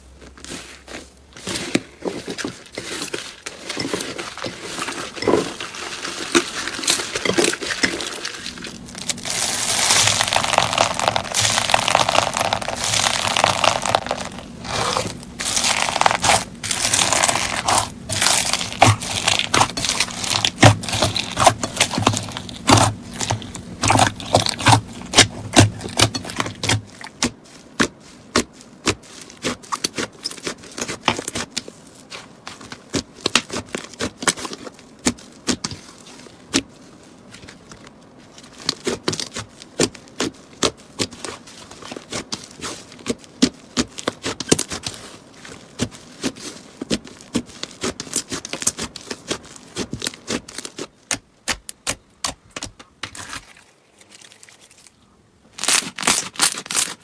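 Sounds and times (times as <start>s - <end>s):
slime crackling: 4.4s - 27.9s, 55.6s - 57.0s.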